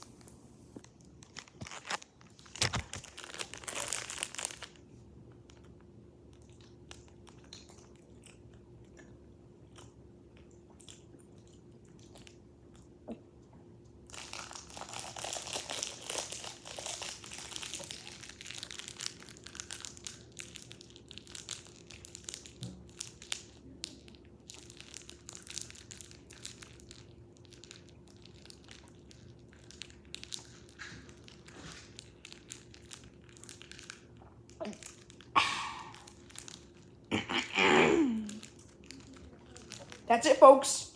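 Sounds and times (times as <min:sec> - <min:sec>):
plastic wrapper crinkling: 0:00.8 - 0:08.0, 0:14.1 - 0:37.1, 0:38.1 - 0:40.4
chewing: 0:06.3 - 0:13.2.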